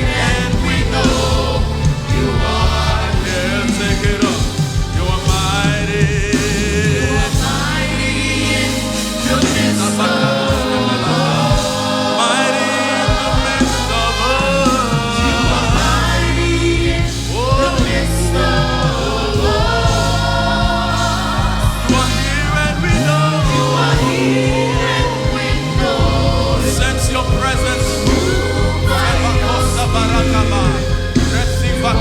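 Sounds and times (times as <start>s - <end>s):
choir singing gospel music: 0.0s - 32.0s
full band playing: 0.0s - 32.0s.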